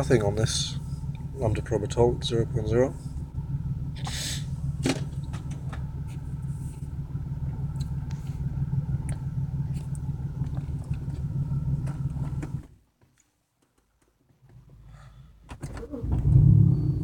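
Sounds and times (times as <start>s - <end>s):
car engine idling and misfiring: 0.0s - 12.9s, 14.4s - 17.0s.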